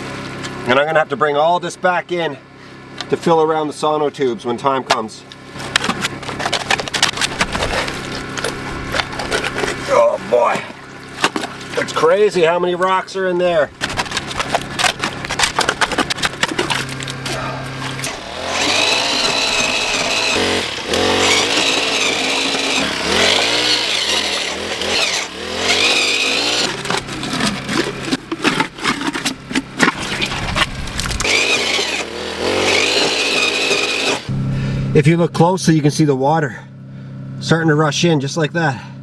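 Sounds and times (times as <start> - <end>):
earth auger engine labouring: 4.4 - 35.5.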